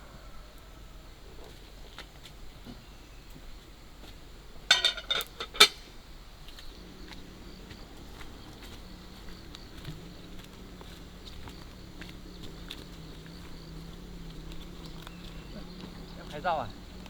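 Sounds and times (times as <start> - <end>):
kitchenware clinking and clattering: 4.7 - 5.8.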